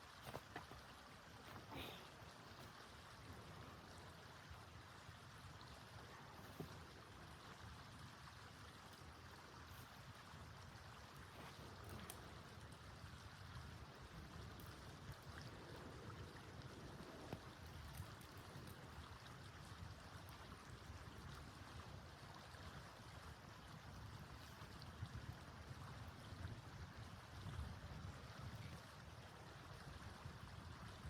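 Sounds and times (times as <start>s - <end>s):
faint wind noise: 0.0s - 31.0s
wind rumble on microphone: 9.6s - 31.0s.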